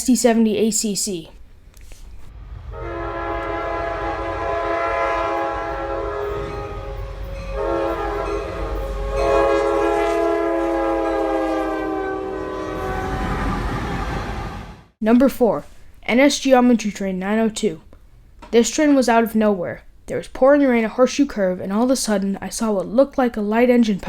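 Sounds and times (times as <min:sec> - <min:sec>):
passing train rumble: 0:02.2 - 0:15.0
locomotive air horn blasts: 0:02.7 - 0:14.7.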